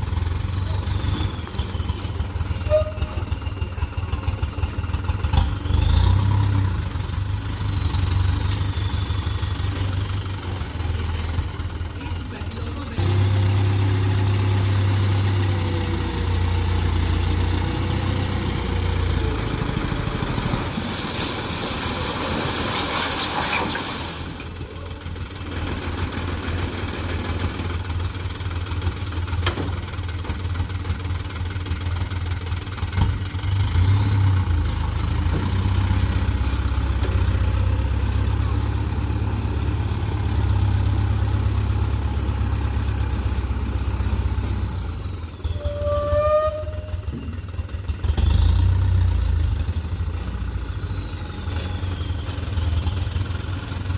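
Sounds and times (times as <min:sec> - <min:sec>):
truck engine rumbling: 0:00.0 - 0:53.9
loud hiss: 0:20.8 - 0:24.4.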